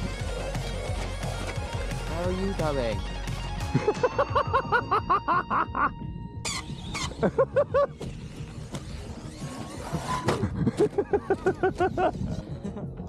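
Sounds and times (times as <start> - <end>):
background music: 0.0 - 13.0
person laughing: 3.7 - 6.0, 7.1 - 8.0, 10.1 - 13.0.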